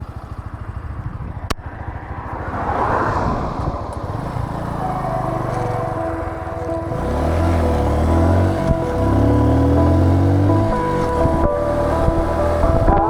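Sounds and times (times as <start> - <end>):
motorcycle engine running: 0.0 - 1.9, 3.9 - 13.0
wind noise: 1.1 - 7.0, 8.1 - 13.0
steady musical tones: 4.4 - 13.0.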